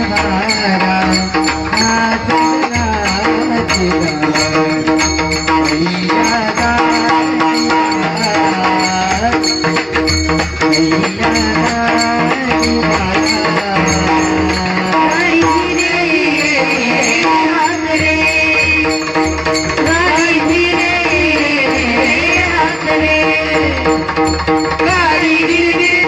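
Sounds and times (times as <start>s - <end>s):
tabla and other instruments: 0.0s - 26.0s
woman singing: 11.0s - 24.2s, 24.8s - 26.0s.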